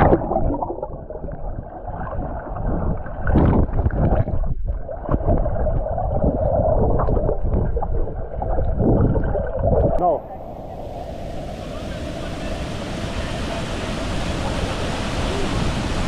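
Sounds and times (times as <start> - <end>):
river water rushing and splashing: 10.0 - 16.0.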